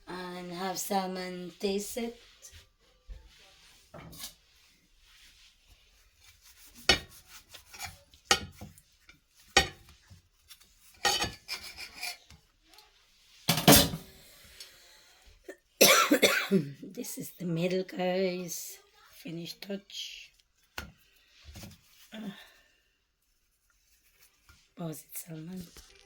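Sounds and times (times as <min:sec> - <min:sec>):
knife scraping through flatbread: 0:03.2 - 0:12.4.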